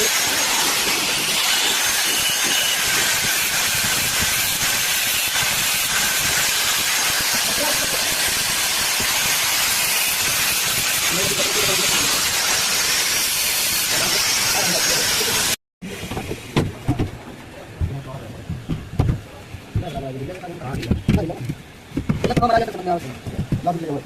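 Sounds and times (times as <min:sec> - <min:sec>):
rushing water hiss: 0:00.0 - 0:15.6.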